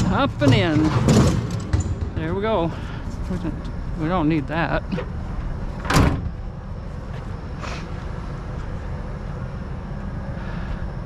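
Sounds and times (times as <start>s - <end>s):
vehicle idling rumble: 0.0s - 11.0s.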